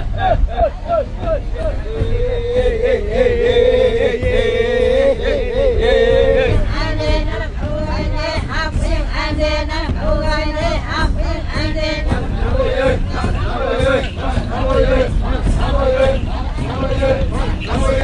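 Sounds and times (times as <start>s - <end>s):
voices singing overlapping phrases: 0.0s - 18.0s.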